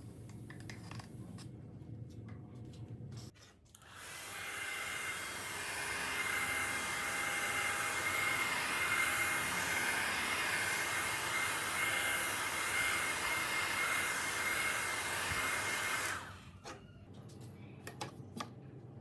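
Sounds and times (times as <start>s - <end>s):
power tool whining: 3.8s - 16.4s.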